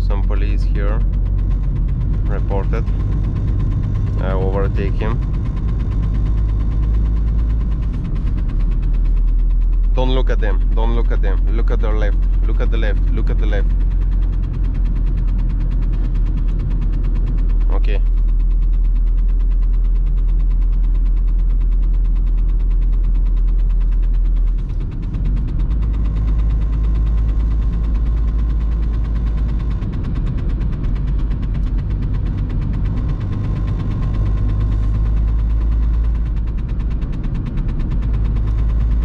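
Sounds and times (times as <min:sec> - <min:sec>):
road noise: 0:00.0 - 0:09.1
diesel engine running: 0:00.0 - 0:39.0.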